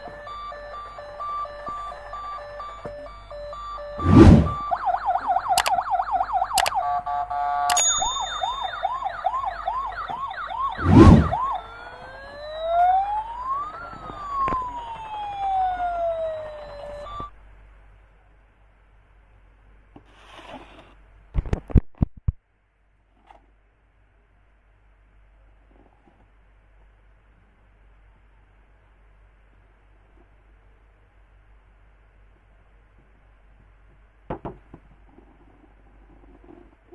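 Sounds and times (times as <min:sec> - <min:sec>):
toy police car siren: 0:00.0 - 0:17.3.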